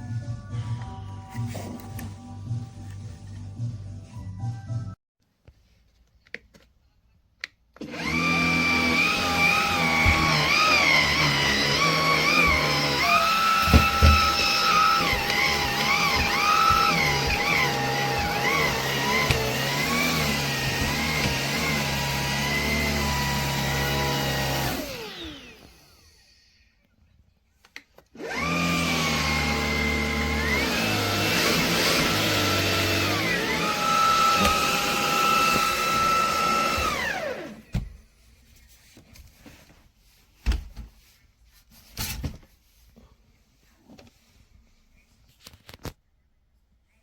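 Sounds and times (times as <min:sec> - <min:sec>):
vacuum cleaner motor running: 0:07.8 - 0:26.6, 0:28.2 - 0:37.7.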